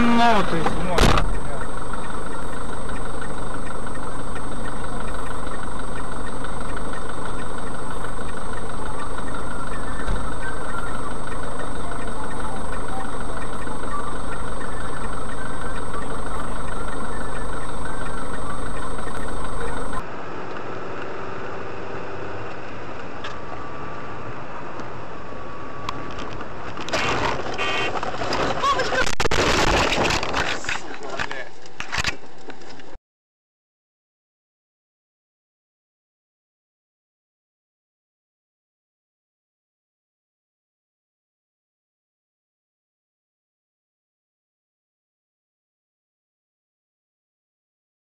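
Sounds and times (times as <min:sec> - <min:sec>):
car engine and cabin noise: 0:00.0 - 0:33.0.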